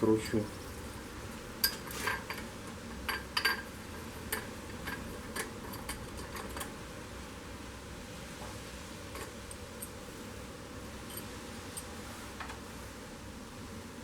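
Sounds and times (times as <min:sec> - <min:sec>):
hand tools tapping on metal: 0:01.6 - 0:06.7.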